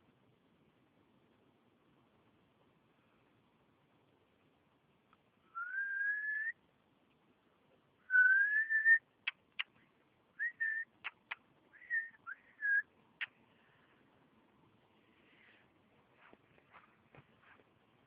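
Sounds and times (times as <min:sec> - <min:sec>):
high whistles and chirps: 0:05.5 - 0:06.6, 0:08.0 - 0:09.7, 0:10.4 - 0:13.3
sharp clicks: 0:09.2 - 0:09.8, 0:11.0 - 0:11.5.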